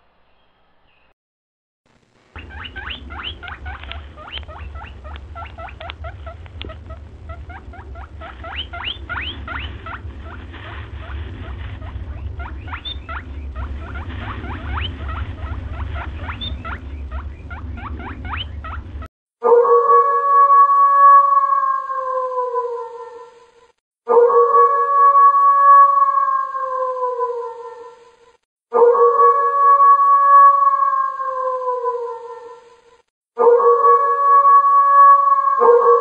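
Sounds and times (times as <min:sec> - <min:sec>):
low rumble: 0:01.9 - 0:19.1
small animal squeaking: 0:02.4 - 0:19.1.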